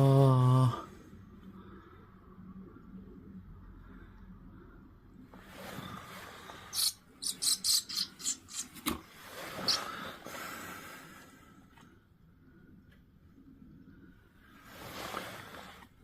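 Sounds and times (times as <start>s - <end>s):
nestling birds cheeping: 6.6s - 8.8s, 9.6s - 10.0s.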